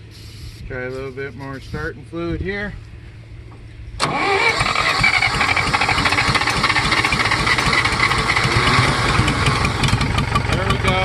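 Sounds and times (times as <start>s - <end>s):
tractor engine starting and running: 3.4s - 11.0s.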